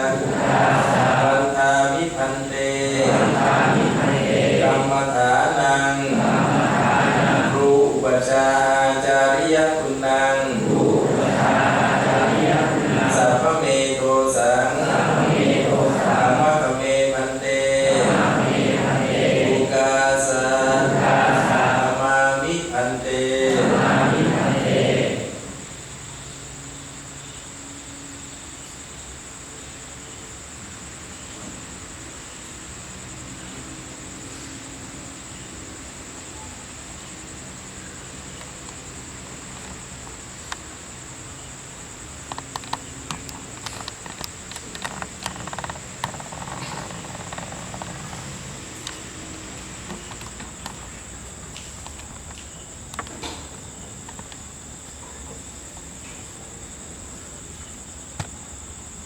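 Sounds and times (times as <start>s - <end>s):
faint low voices: 0.0s - 25.9s
crickets trilling: 0.0s - 59.0s.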